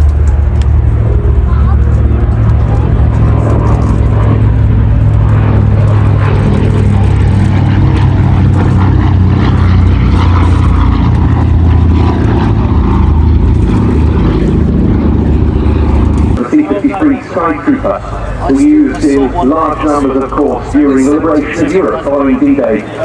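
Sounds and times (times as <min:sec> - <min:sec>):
propeller plane engines droning: 0:00.0 - 0:23.0.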